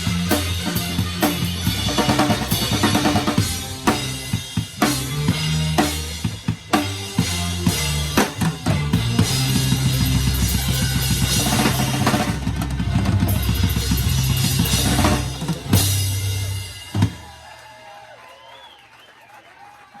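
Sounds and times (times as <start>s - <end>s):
bass drum and snare: 0.0s - 17.3s
big drum hit ringing: 0.0s - 17.3s
live band playing: 0.0s - 17.4s
faint crowd noise: 0.0s - 20.0s.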